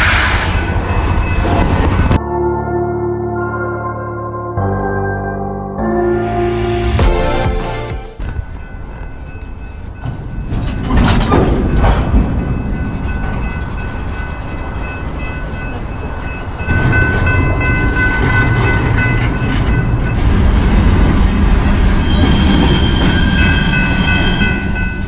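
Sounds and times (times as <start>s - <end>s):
train wheels rumbling on rails: 0.0s - 2.2s, 8.2s - 25.0s.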